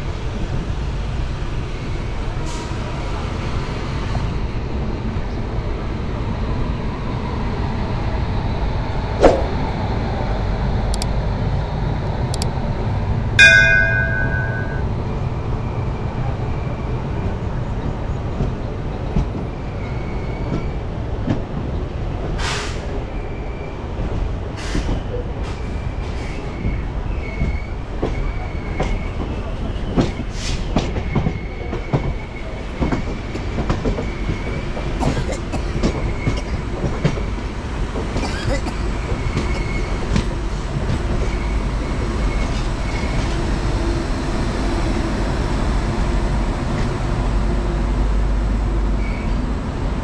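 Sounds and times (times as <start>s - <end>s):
train wheels rumbling on rail: 0.0s - 50.0s
train clanks: 12.1s - 15.2s, 17.1s - 45.0s.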